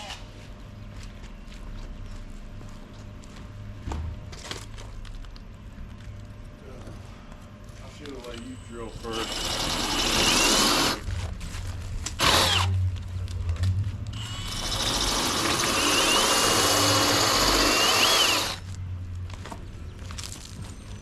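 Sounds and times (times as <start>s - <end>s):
power drill boring into brick: 9.0s - 11.0s, 12.2s - 12.7s, 14.2s - 18.6s.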